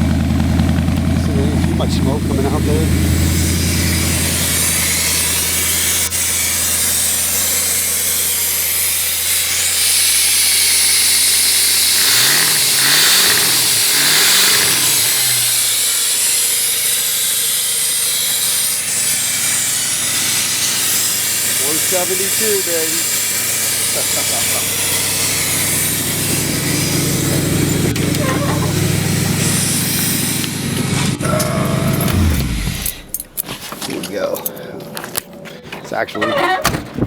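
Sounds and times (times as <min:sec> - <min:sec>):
car engine revving: 0:00.0 - 0:35.5
loud hiss: 0:01.7 - 0:33.2.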